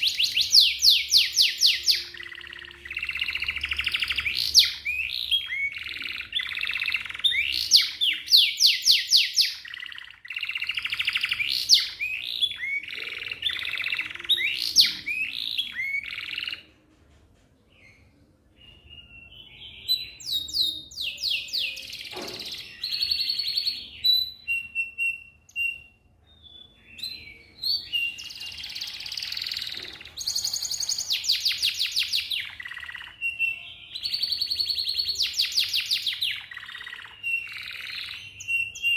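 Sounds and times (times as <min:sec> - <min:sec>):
canary singing trills: 0:00.0 - 0:16.7, 0:17.8 - 0:38.9.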